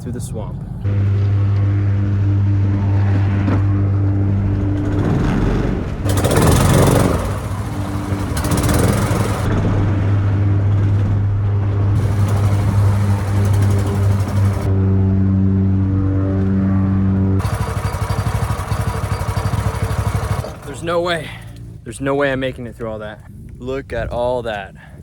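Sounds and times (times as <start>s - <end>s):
outboard motor droning: 0.8s - 9.5s, 11.5s - 14.8s, 17.4s - 21.8s
loud rushing surge: 0.9s - 14.8s.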